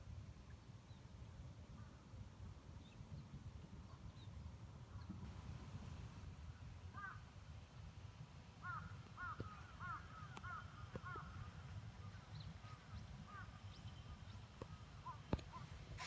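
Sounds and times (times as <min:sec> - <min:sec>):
bird calling: 0:08.6 - 0:11.5.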